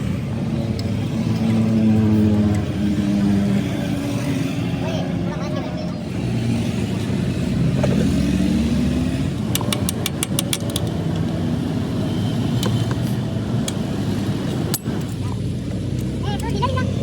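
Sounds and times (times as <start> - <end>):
sharp clicks: 9.4 - 11.3.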